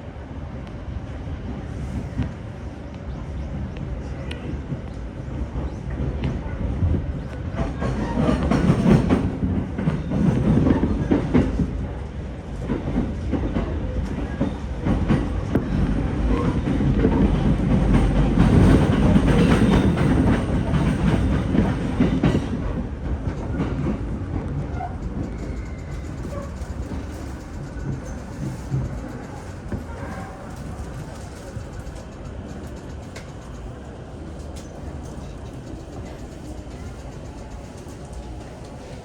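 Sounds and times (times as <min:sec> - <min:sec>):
train running rumble: 0:00.1 - 0:39.0
train wheels clattering over joints: 0:07.5 - 0:11.8, 0:12.6 - 0:39.0.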